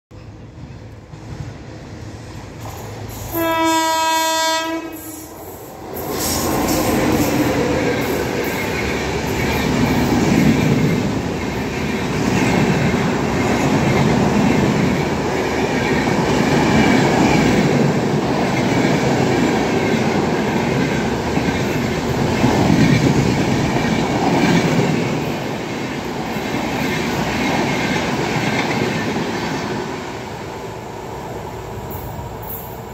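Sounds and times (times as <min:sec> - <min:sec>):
train rumbling past: 0:00.1 - 0:32.9
locomotive horn blast: 0:03.3 - 0:05.3.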